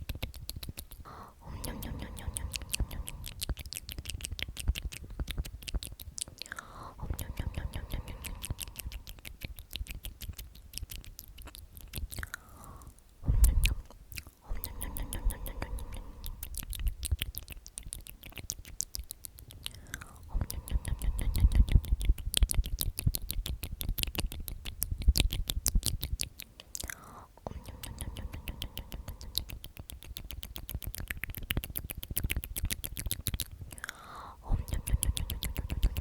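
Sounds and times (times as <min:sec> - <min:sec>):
tongue clicks and lip smacks: 0:00.0 - 0:36.0
person whispering: 0:00.9 - 0:04.2, 0:06.2 - 0:09.4, 0:12.1 - 0:17.4, 0:19.4 - 0:23.3, 0:26.6 - 0:30.6, 0:33.7 - 0:36.0.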